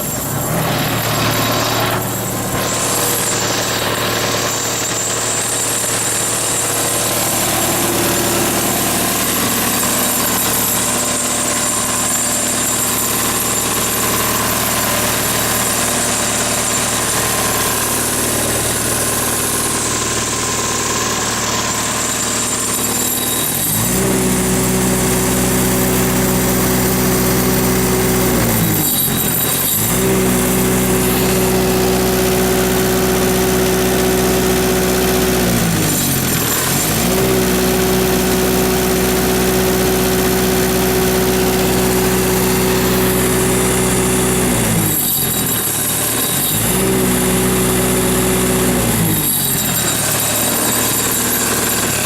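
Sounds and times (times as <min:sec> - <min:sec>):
diesel engine idling and revving: 0:00.0 - 0:52.0.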